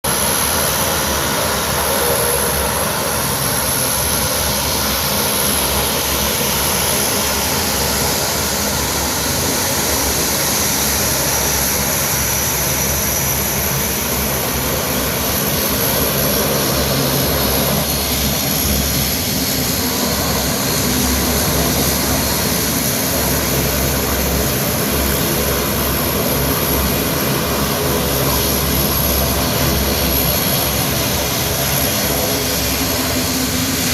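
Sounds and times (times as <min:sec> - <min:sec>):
aircraft engine drone: 0:00.0 - 0:33.9.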